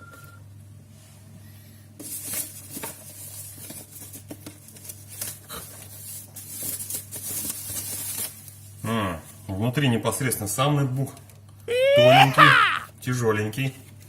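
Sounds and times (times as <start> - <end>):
cardboard packaging rustling: 2.0 - 8.8.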